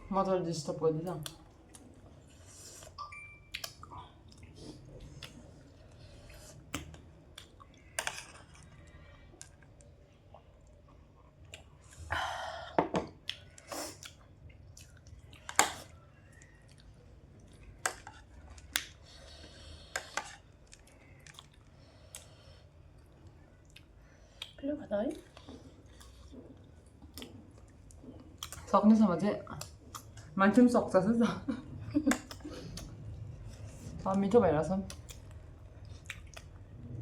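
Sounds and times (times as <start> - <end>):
chewing puffed rice: 13.2 - 28.7, 34.9 - 36.8.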